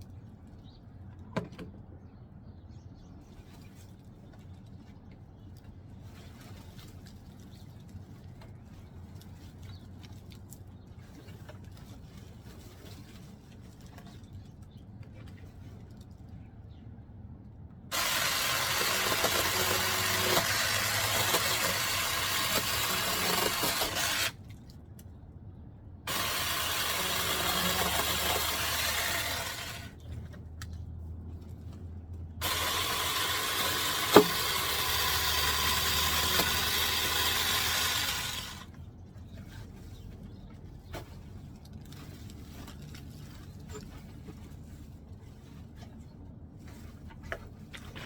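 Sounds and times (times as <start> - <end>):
small chainsaw running: 17.9 - 24.4, 26.1 - 30.0, 32.4 - 38.7.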